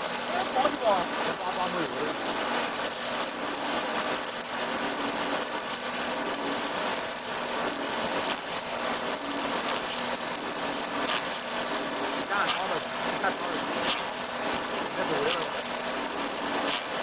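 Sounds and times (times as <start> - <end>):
wood milling machine running: 0.0 - 17.0.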